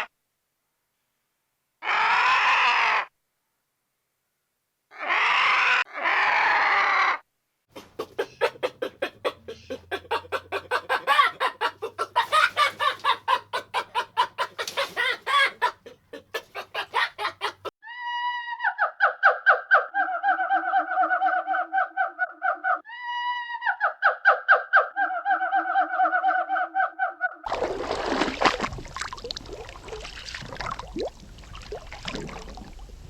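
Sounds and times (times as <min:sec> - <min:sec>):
chickens clucking: 0:07.8 - 0:17.7.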